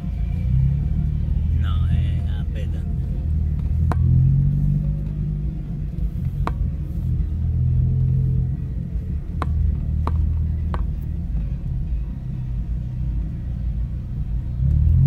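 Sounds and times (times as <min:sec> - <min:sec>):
car engine humming at low revs: 0:00.0 - 0:15.0.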